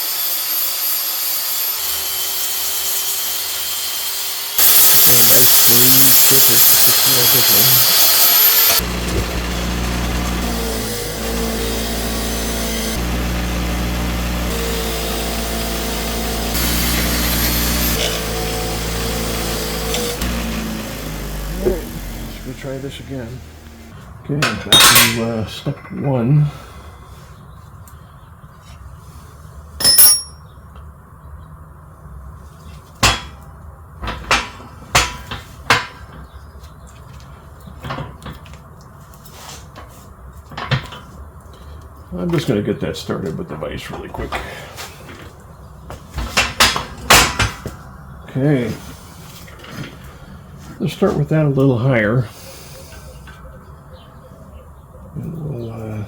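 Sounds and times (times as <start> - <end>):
electric grinder grinding steel: 0.0 - 24.0
metal-on-metal knocks and clanks: 24.4 - 26.1, 29.8 - 30.4, 33.0 - 33.4, 34.0 - 36.3, 46.2 - 47.8.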